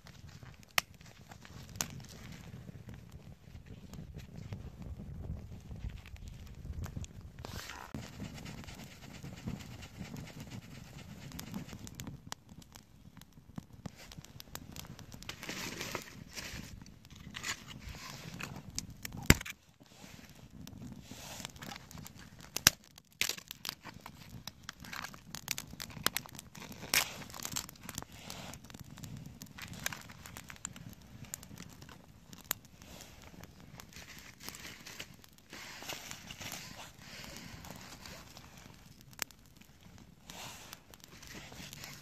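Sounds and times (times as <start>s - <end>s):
dry twigs and leaves crackling: 0.0s - 4.6s, 13.8s - 20.5s, 21.4s - 42.0s.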